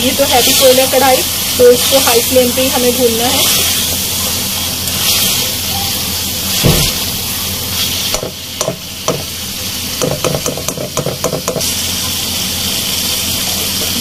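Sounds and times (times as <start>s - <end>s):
curry sizzling in a wok: 0.0s - 14.0s
low thump: 6.6s - 7.0s.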